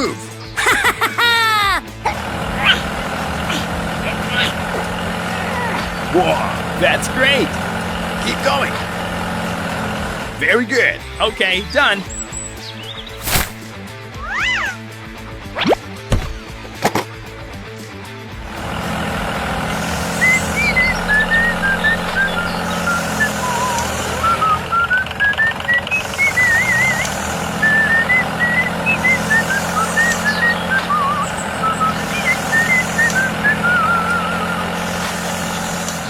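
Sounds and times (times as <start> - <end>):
tractor engine running: 1.9 - 11.9, 18.1 - 36.0
quick high chirping: 13.0 - 13.7.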